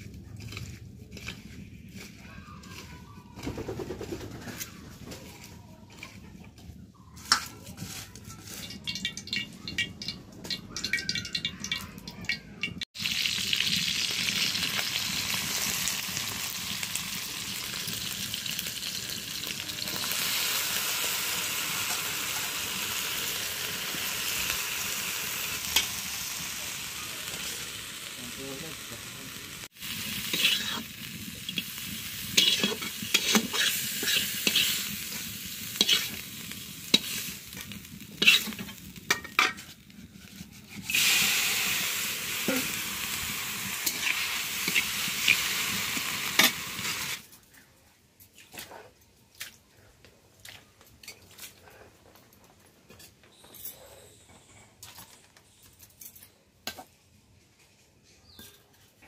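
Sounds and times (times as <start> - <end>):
metal utensils clinking on pan: 7.2 - 12.9, 30.2 - 36.2, 36.9 - 39.8, 43.7 - 47.2
prawns sizzling in hot oil: 7.2 - 47.3.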